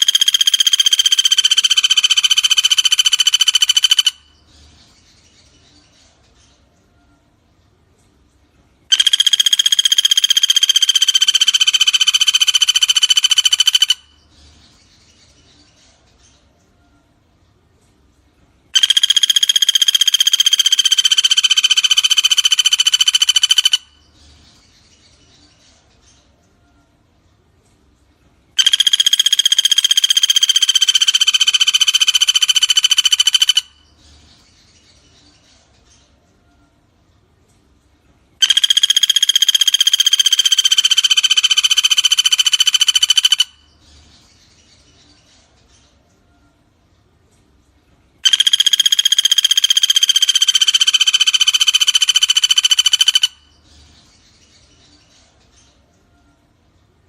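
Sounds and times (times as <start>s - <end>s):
woodpecker rattling trill: 0.0s - 4.4s, 8.9s - 14.2s, 18.8s - 24.1s, 28.6s - 33.9s, 38.4s - 43.8s, 48.2s - 53.6s.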